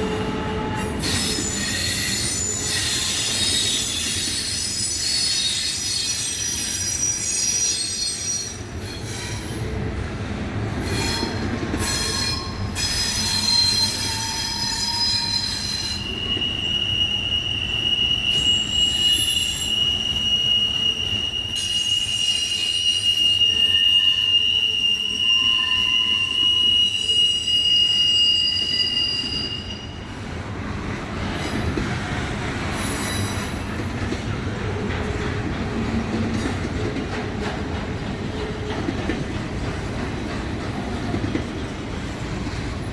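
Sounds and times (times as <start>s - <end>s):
train wheels squealing: 0.0s - 9.7s, 10.8s - 30.4s, 31.2s - 34.4s
train rolling rumble: 0.0s - 23.9s, 28.6s - 42.9s.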